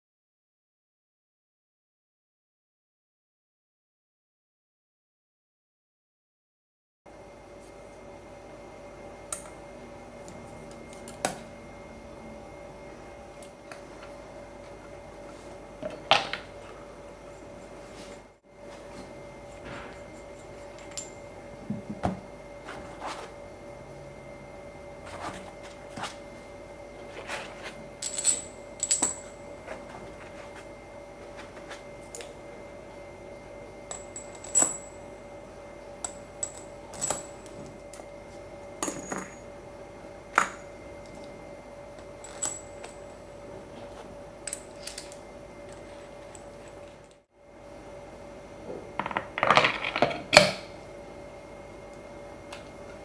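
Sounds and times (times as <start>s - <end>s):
steady machine hum: 7.1s - 53.0s
metal parts clinking: 28.0s - 29.3s.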